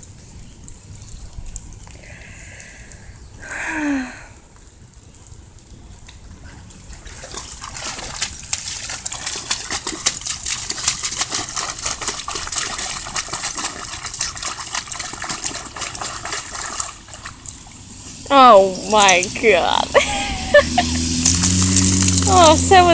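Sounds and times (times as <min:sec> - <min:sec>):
dog splashing in muddy puddle: 0:06.3 - 0:22.9.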